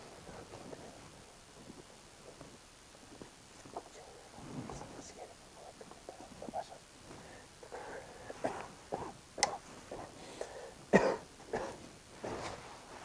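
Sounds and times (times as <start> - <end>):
person coughing: 8.3 - 10.1, 10.9 - 11.8.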